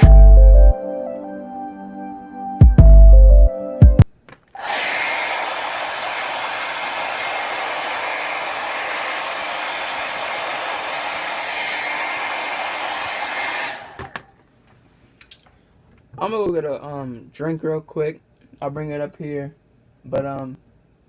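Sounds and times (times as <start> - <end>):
hair dryer running: 4.6 - 14.3.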